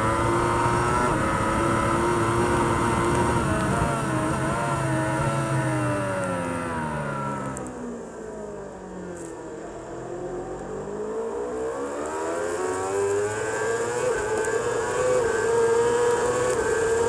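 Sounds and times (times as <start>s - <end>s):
superbike engine revving: 0.0s - 7.6s, 11.3s - 17.0s.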